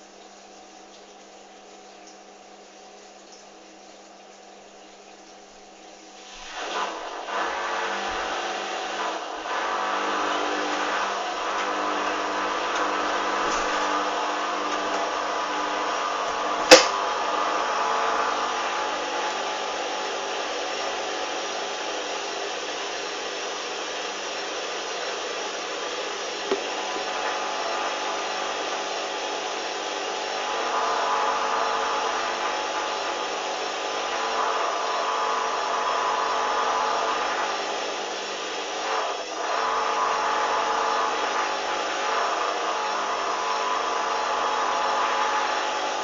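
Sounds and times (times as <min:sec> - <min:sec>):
washing machine motor whine: 0:00.0 - 0:46.0
washing machine click: 0:16.6 - 0:17.0.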